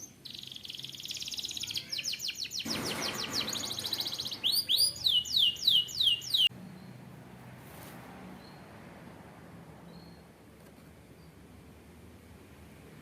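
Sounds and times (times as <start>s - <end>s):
canary singing: 0.0s - 7.0s.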